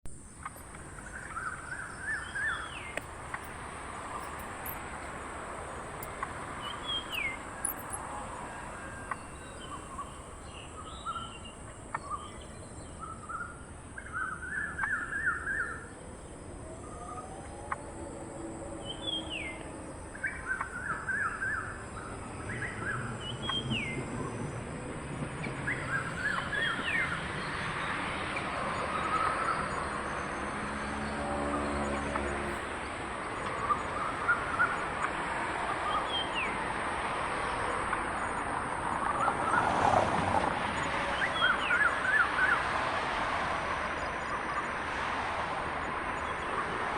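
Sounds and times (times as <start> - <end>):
bird trills: 0.4 - 10.3.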